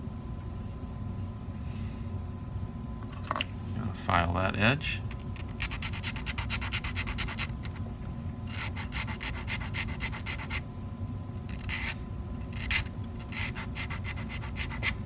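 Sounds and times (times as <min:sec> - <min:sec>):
hand file rasping metal: 0:05.4 - 0:07.8, 0:08.5 - 0:10.6, 0:11.5 - 0:15.0.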